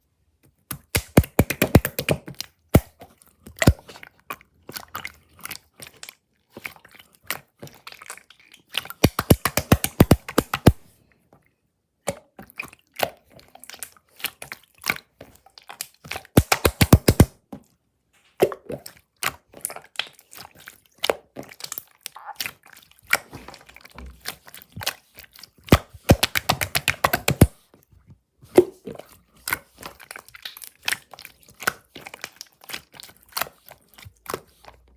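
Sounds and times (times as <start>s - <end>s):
slime clicking and popping: 1.0s - 2.2s, 9.0s - 10.8s, 16.4s - 17.3s, 25.7s - 27.6s.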